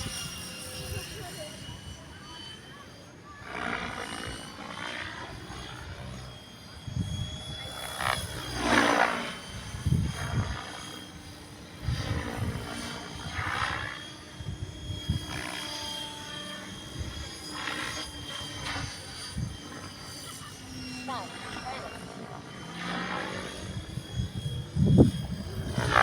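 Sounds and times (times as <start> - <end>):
model airplane motor whining: 0.0 - 26.0
wind gusting on microphone: 6.8 - 10.8, 11.8 - 15.6, 23.3 - 26.0.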